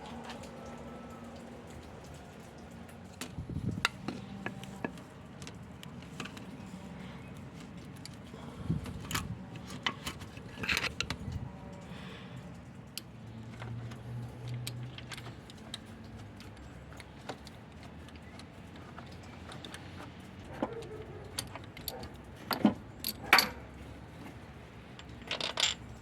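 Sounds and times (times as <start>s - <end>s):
metal tools clinking: 9.7s - 11.1s, 20.6s - 23.8s, 24.9s - 26.0s.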